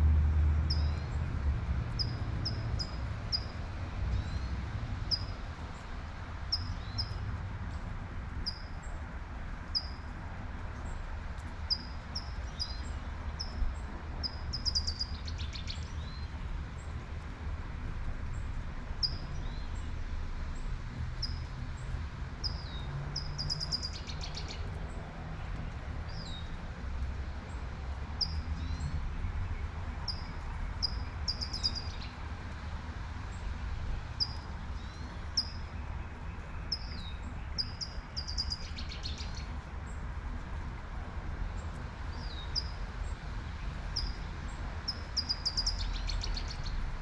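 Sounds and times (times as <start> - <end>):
low rumble of traffic: 0.0 - 47.0
songbird chirping: 28.2 - 32.2, 34.2 - 39.6, 41.6 - 46.8.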